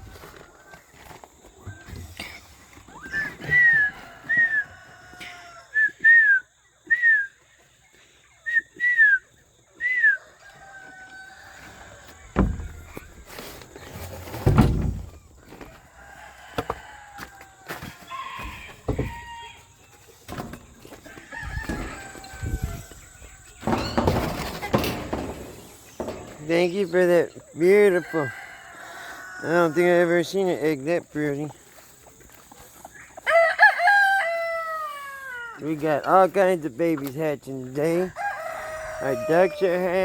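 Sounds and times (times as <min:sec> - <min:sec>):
poultry clucking: 0:00.0 - 0:40.0
thumps: 0:12.1 - 0:15.4, 0:23.4 - 0:26.7.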